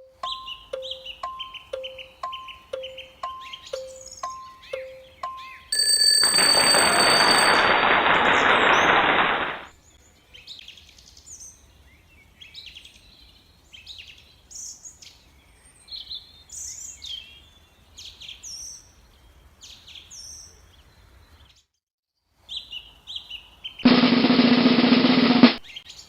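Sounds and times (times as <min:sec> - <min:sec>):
bird chirping: 0:00.0 - 0:05.8.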